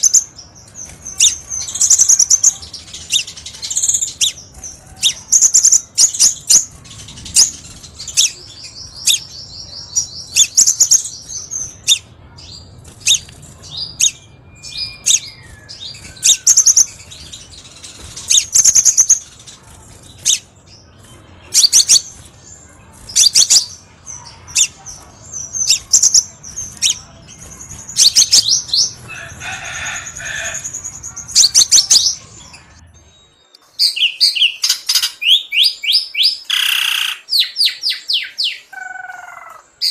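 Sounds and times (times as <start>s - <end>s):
bird singing high chirps: 0.0s - 19.5s.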